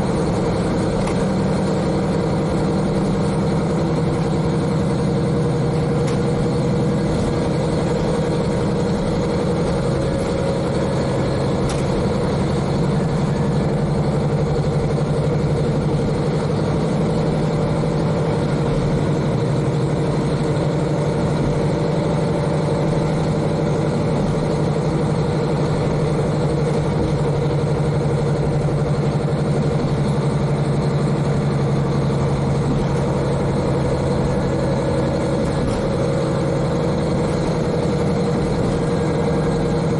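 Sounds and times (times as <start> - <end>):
diesel engine running: 0.0 - 39.9
train running noise: 0.0 - 39.9.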